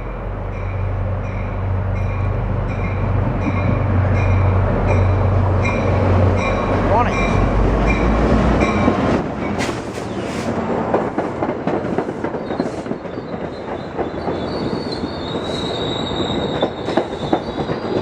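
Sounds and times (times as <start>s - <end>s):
locomotive engine hum: 0.0s - 12.8s
train cars rushing: 0.0s - 18.0s
high-pitched wheel squeal: 13.5s - 18.0s.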